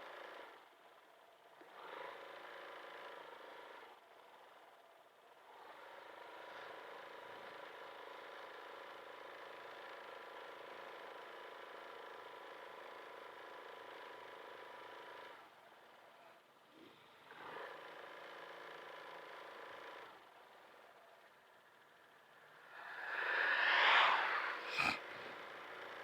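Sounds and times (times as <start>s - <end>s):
scooter engine hum: 22.2s - 25.6s
road noise: 22.3s - 25.9s.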